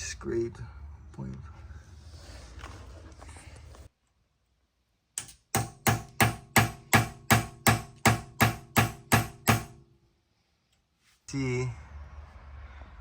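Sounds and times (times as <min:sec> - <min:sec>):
hammer striking metal: 0:05.2 - 0:09.9.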